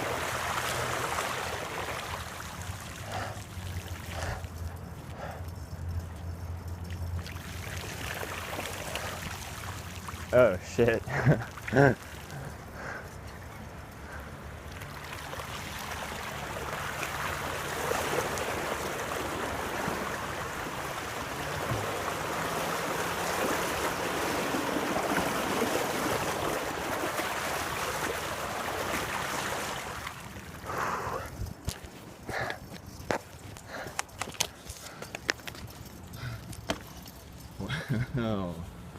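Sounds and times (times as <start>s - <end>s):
flood water rushing and splashing: 0.0s - 5.2s, 7.2s - 13.0s, 14.1s - 31.0s.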